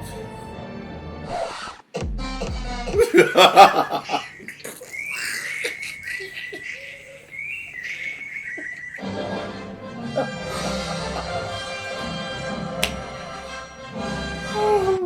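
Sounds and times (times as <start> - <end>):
burst of laughter: 3.0 - 9.0.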